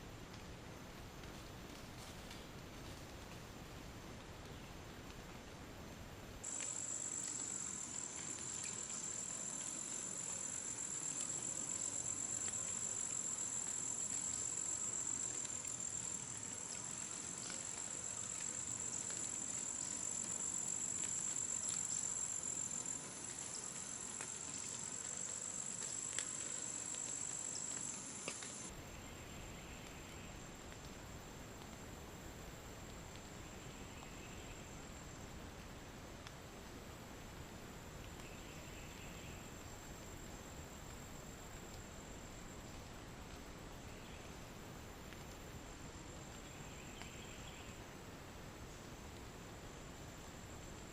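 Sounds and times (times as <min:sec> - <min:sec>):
insects trilling: 0:06.4 - 0:30.7
faint clicks: 0:25.7 - 0:28.7.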